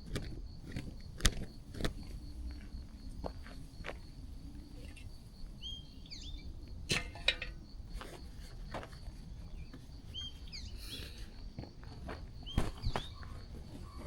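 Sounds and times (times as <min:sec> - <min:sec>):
small birds chirping: 0:04.7 - 0:06.6, 0:08.8 - 0:11.6, 0:12.3 - 0:14.0.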